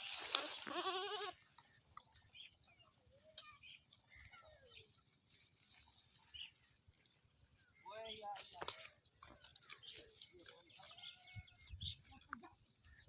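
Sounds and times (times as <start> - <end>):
goat bleating: 0.6 - 1.4.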